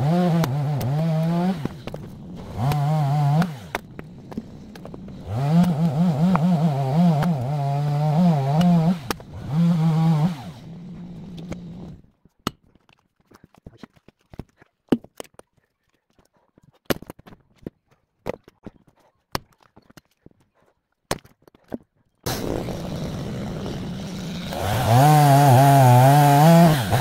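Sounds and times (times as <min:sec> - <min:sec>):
chainsaw revving and cutting logs: 0:00.0 - 0:12.0, 0:22.3 - 0:27.0.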